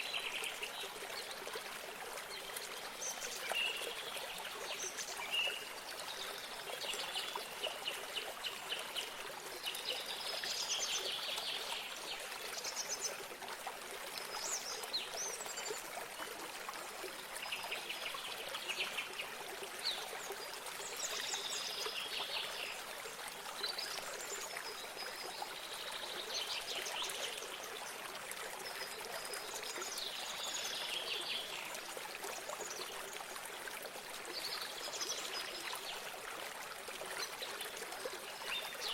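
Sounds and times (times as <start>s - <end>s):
stream trickling: 0.0s - 38.9s.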